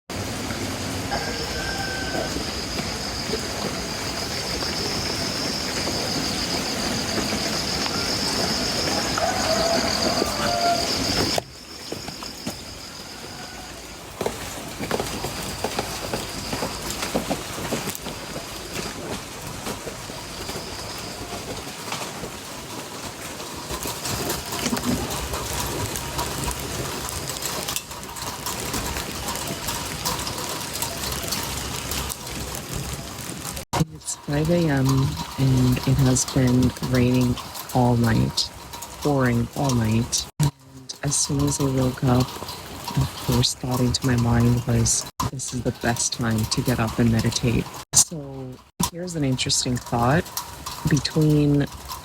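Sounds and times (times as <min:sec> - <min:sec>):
heavy rain pouring: 0:00.1 - 0:52.0.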